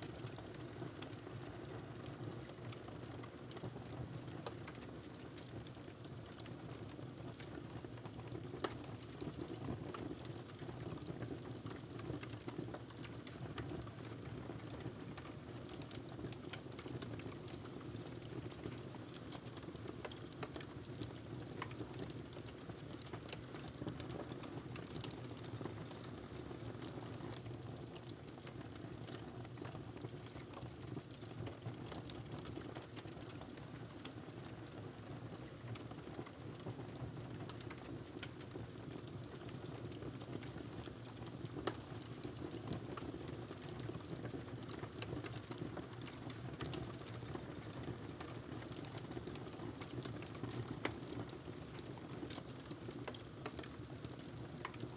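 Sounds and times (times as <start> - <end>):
wood fire crackling: 31.8 - 34.5, 35.6 - 54.9.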